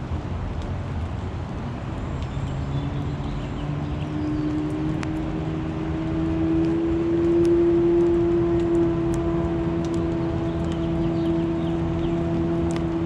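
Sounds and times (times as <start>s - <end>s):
engine drone rising in pitch: 2.4s - 13.0s
steady rushing background: 2.9s - 13.0s.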